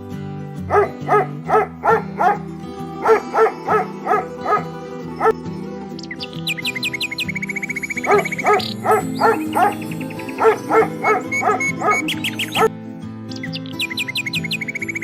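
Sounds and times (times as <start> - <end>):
background music: 0.0 - 15.0
dog barking: 0.7 - 2.4, 3.0 - 5.4, 8.0 - 12.7.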